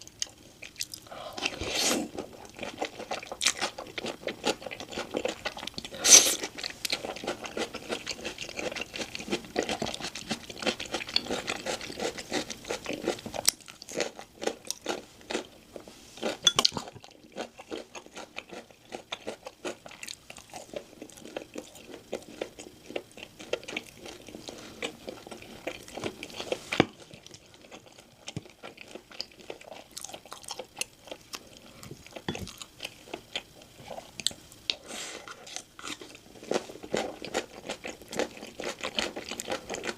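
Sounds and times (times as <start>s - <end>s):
crunchy bites and chewing: 16.3s - 39.9s.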